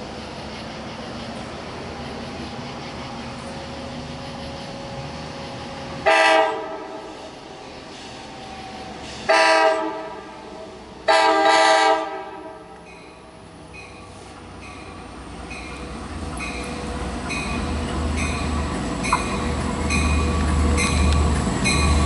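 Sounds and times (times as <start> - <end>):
train rumbling: 0.0 - 22.0
train horn blasts: 6.0 - 7.1, 9.3 - 12.8.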